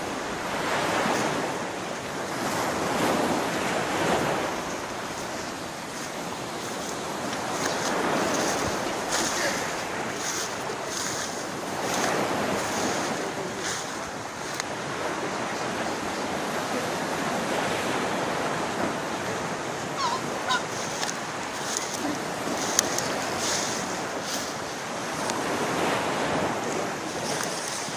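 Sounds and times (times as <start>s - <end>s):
waterfall rushing: 18.2s - 26.0s.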